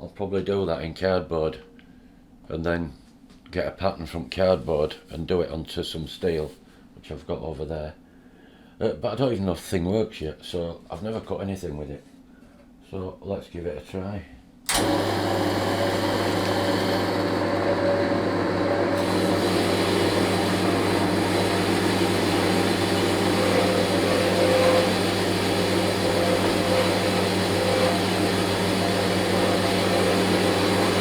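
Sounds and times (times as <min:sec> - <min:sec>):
bandsaw running: 0:14.7 - 0:31.0.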